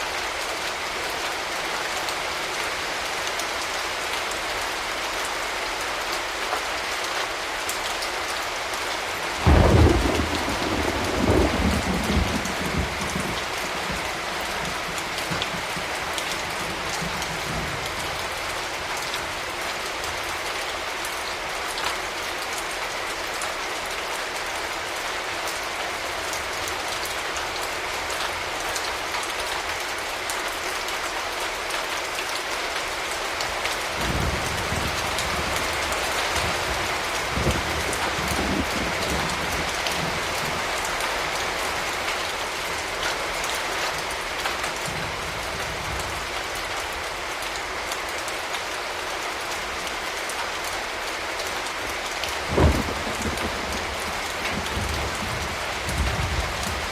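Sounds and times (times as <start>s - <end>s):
steady rain: 0.0s - 56.9s
thunderclap rumbling: 9.4s - 17.9s, 34.0s - 40.6s, 52.4s - 56.9s.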